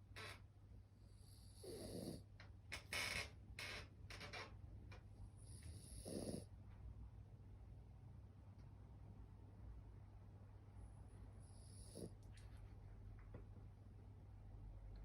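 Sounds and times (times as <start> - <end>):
dog snoring: 1.1 - 2.3, 5.4 - 6.5, 11.4 - 12.2.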